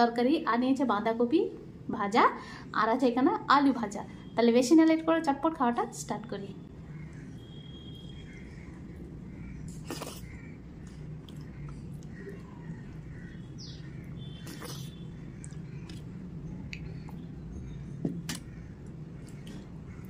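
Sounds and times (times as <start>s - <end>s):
steady low hum: 0.0s - 20.0s
faint bird chirps: 6.8s - 10.6s
chewing and lip smacks: 9.6s - 13.1s, 14.4s - 17.3s.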